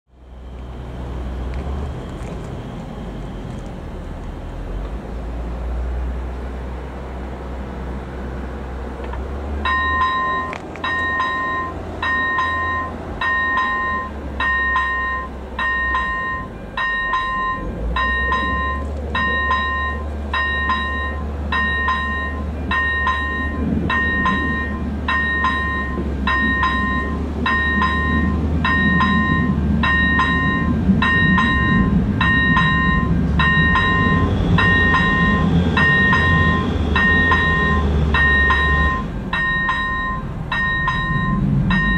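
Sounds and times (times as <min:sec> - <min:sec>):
train rumbling: 0:00.1 - 0:41.9
level crossing warning bell: 0:09.5 - 0:41.9.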